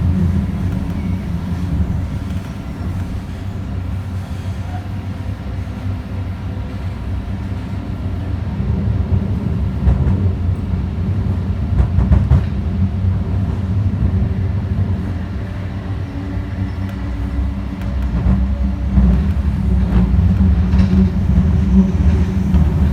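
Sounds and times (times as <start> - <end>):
wheels rumbling on rail: 0.0 - 22.9
wheels clicking over track: 16.6 - 22.9.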